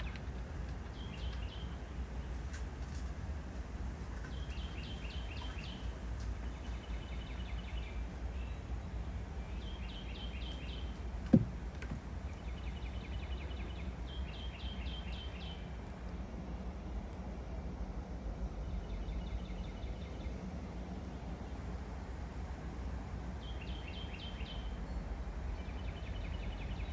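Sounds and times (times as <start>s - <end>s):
songbird singing: 0.0s - 16.5s, 18.4s - 26.9s
low background rumble: 0.0s - 26.9s
sharp thump: 11.3s - 12.0s.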